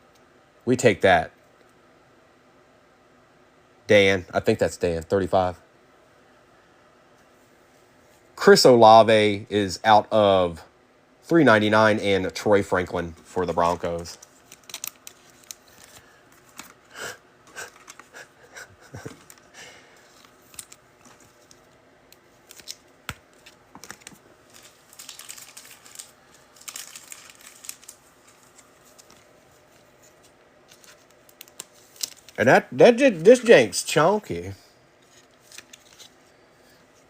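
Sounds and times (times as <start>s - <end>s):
cards clicking and rustling: 13.5s - 16.8s, 17.5s - 18.3s, 18.9s - 32.4s, 35.0s - 36.3s
wrapper crinkling and tearing: 13.6s - 16.8s, 22.4s - 32.4s, 35.0s - 36.1s.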